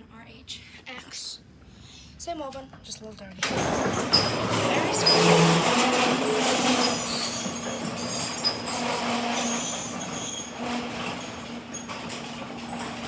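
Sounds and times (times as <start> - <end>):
overhead door motor hum: 3.4 - 13.0.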